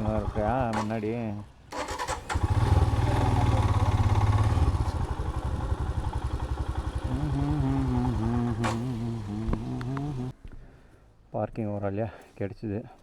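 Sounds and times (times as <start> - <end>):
vehicle engine idling: 0.0 - 10.3
short clicks: 0.7 - 2.3, 8.6 - 10.3.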